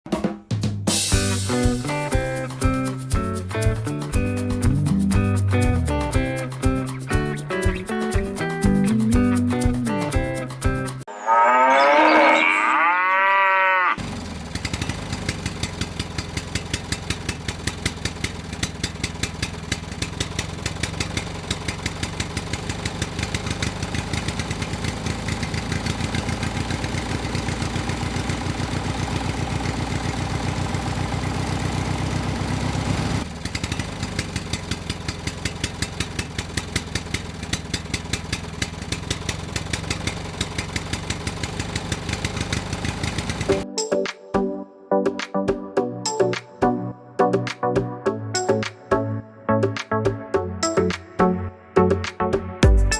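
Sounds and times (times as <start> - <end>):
cow mooing: 11.1 - 14.0
small tractor motor chugging: 14.0 - 43.6.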